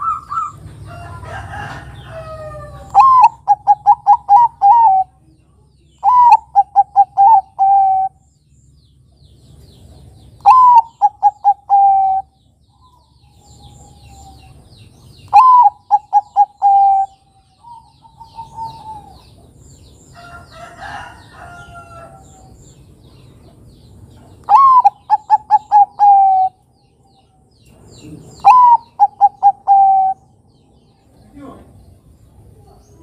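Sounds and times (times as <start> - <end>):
dove cooing: 0.0 - 5.2, 6.0 - 8.2, 10.4 - 12.3, 15.3 - 19.6, 24.4 - 26.6, 28.2 - 30.4.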